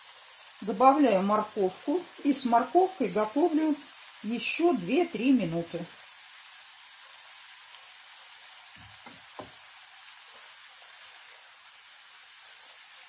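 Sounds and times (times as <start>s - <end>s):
vegetables sizzling in a pan: 0.0s - 13.0s
soft knocks: 8.8s - 9.6s.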